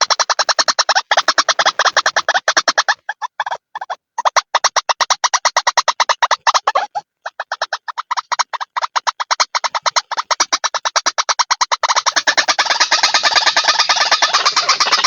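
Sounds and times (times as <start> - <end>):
waterhen harsh chatter: 12.2 - 15.0.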